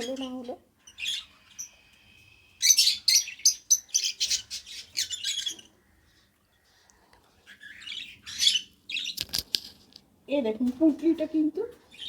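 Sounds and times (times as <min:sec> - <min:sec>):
lovebird chirping: 0:00.0 - 0:05.8, 0:07.5 - 0:09.6.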